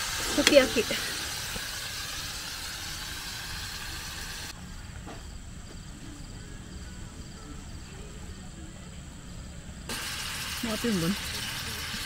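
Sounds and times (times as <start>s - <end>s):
food sizzling in frying pan: 0.0s - 4.6s, 9.9s - 12.0s
crickets chirping: 0.0s - 12.0s.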